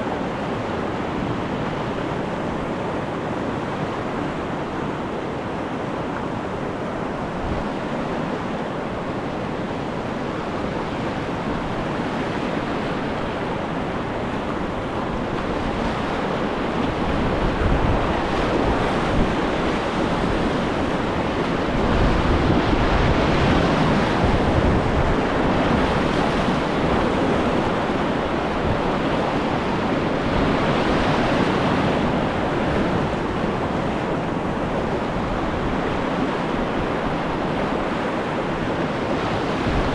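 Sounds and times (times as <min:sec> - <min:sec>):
river rapid roaring: 0:00.0 - 0:39.9.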